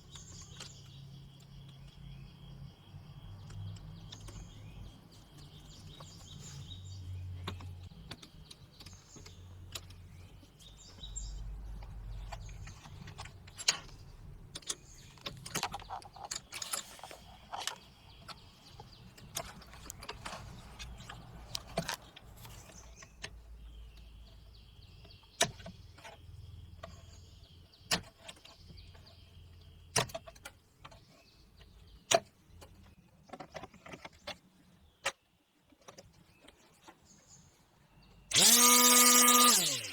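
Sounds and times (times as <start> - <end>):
birds chirping: 0.0 - 30.0, 35.8 - 39.9
tools and parts clicking: 11.8 - 22.3.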